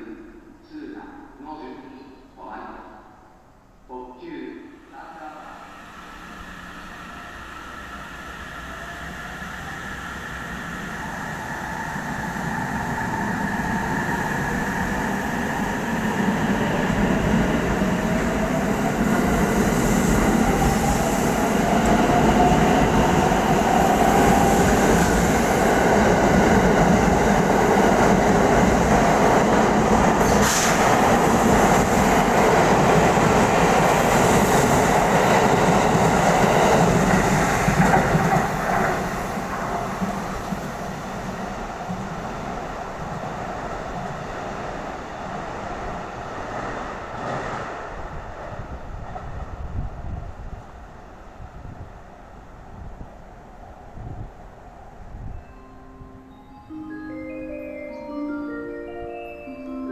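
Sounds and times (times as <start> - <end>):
train wheels rumbling on rails: 7.8 - 52.0.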